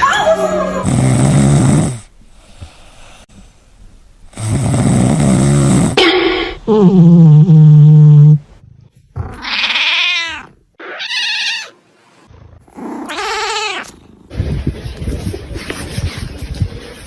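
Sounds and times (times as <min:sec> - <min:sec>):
cat meowing: 0:09.3 - 0:11.7.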